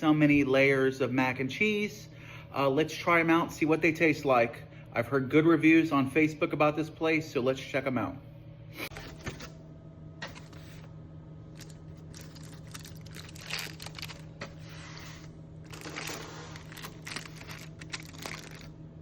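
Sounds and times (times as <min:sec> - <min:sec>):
steady low hum: 0:00.0 - 0:19.0
food packaging crinkling and rustling: 0:11.6 - 0:18.8.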